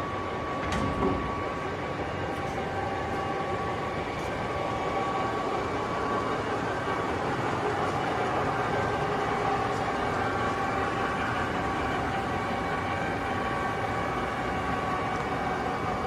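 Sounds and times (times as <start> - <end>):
lathe mechanical hum: 0.0 - 16.0.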